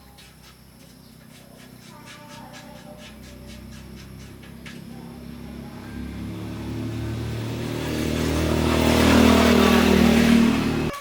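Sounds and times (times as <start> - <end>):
air compressor drone: 3.2 - 11.0.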